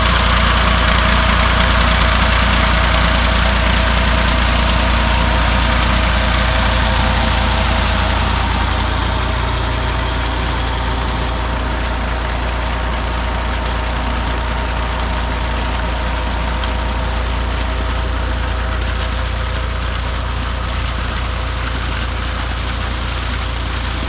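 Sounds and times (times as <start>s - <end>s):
diesel tractor engine running: 0.0s - 24.0s.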